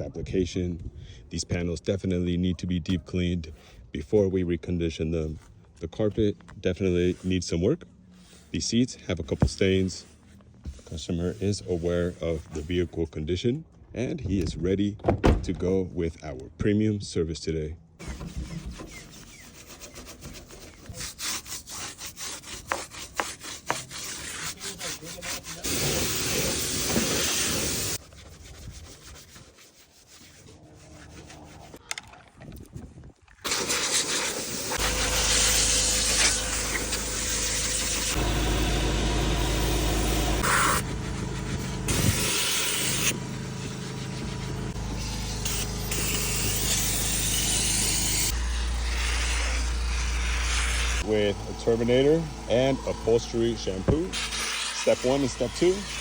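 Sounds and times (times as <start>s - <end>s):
brush scrubbing: 18.0s - 31.8s, 33.5s - 51.1s, 53.1s - 56.0s
motor humming: 34.3s - 54.4s.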